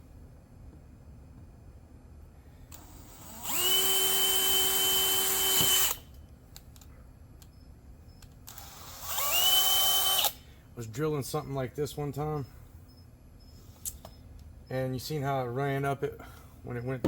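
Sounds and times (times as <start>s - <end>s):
power drill whining: 2.7s - 6.1s, 8.5s - 10.5s.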